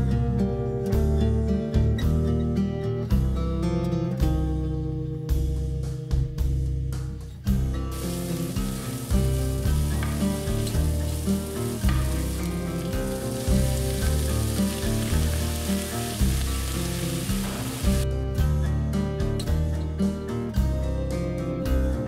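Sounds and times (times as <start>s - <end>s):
background music with bass and guitar: 0.0s - 22.0s
food sizzling in hot oil: 7.9s - 18.1s.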